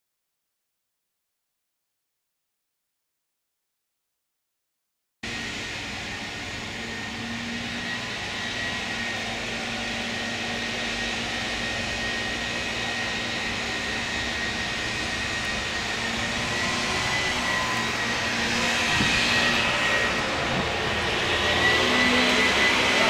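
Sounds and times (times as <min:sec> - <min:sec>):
thin high whine: 0:13.2 - 0:23.0
trains rumbling and hissing: 0:14.1 - 0:23.0.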